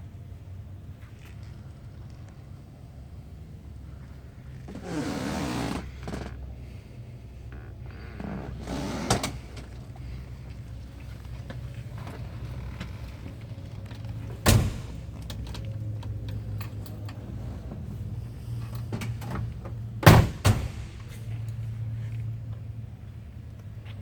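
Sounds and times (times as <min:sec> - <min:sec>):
car doors shutting: 0:04.6 - 0:06.5, 0:07.6 - 0:10.3, 0:11.5 - 0:21.8
steady low hum: 0:05.9 - 0:24.0.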